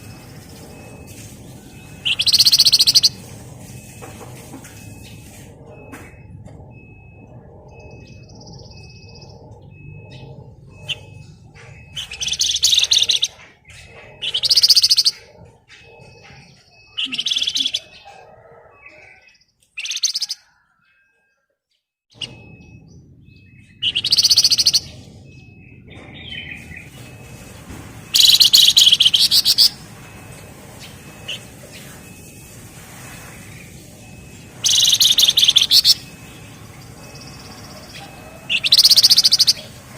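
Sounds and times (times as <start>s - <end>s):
songbird singing buzzing trills: 0.0s - 21.0s, 22.1s - 39.9s.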